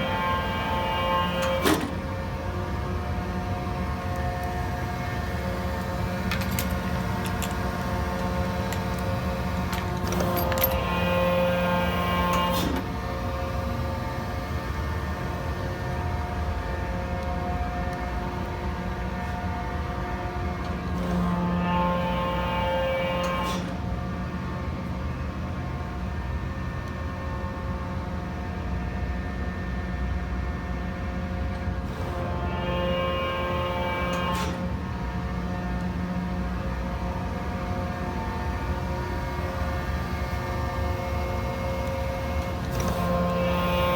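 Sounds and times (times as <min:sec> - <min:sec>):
planer hydraulic drive humming: 0:00.0 - 0:16.2, 0:38.9 - 0:43.9
hydraulic machine hum and whine: 0:00.0 - 0:43.9.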